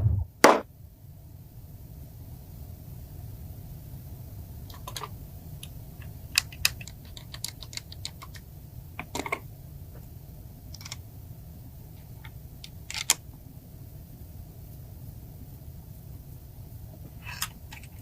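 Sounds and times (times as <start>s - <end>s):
steady low hum: 0.0s - 18.0s
small hard parts clicking: 6.3s - 9.4s, 10.7s - 11.0s.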